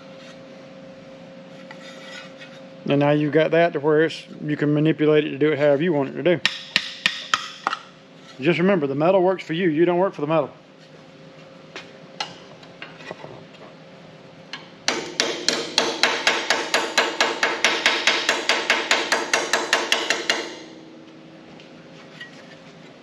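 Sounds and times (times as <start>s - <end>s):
hammer ringing on sheet metal: 14.9s - 21.0s.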